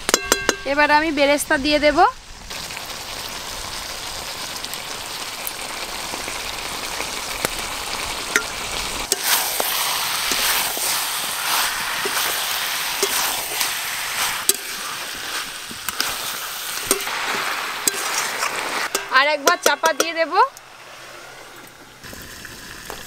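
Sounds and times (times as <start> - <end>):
meat sizzling in a pan: 2.3 - 19.8
metal spatula scraping pan: 9.1 - 21.4.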